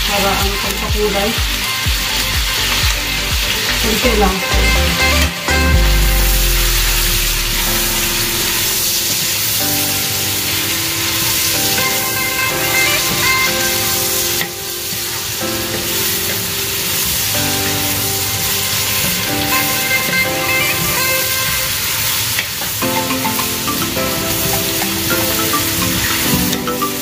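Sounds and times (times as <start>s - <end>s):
light background music: 0.0s - 22.1s, 22.8s - 27.0s
chicken sizzling in a pot: 14.0s - 20.0s.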